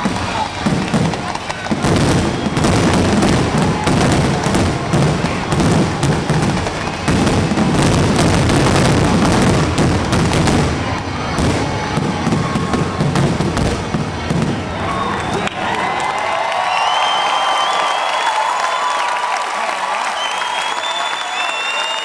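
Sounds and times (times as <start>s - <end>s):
fireworks bursts and crackle: 0.0s - 15.8s.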